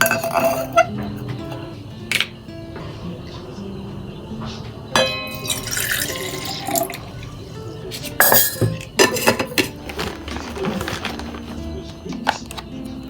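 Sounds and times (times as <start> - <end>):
glass and tableware clinking: 0.0 - 2.4, 5.0 - 7.3, 7.9 - 11.3
tap water running into sink: 5.4 - 7.0.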